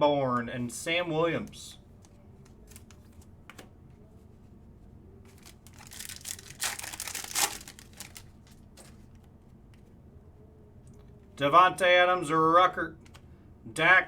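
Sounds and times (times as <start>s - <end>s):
foil wrapper tearing and crinkling: 5.3s - 8.6s.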